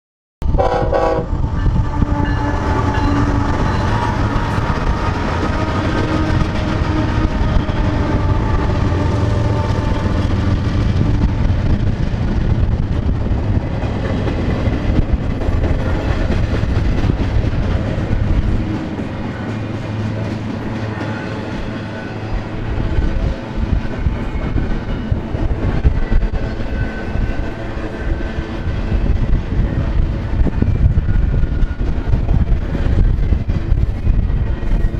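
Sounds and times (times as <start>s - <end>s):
locomotive horn: 0.4s - 11.5s
heavy train rumble: 0.4s - 34.9s.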